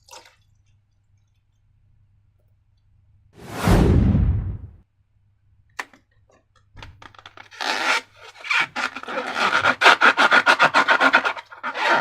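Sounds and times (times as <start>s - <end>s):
balloon rubbing and squeaking: 7.3s - 12.0s.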